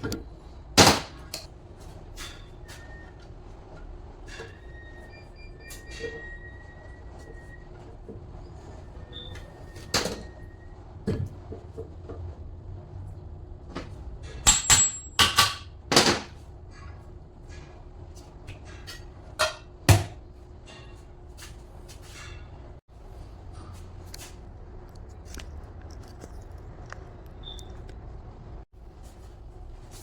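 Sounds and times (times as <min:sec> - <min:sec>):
tools and metal parts clattering: 0:00.0 - 0:01.5, 0:13.8 - 0:19.8.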